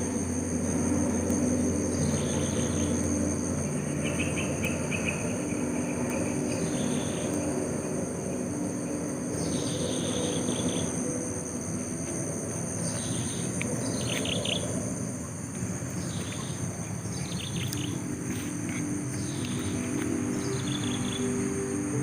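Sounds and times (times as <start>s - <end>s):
crickets trilling: 0.0s - 22.0s
low background rumble: 0.0s - 22.0s
birds chirping: 15.8s - 21.6s.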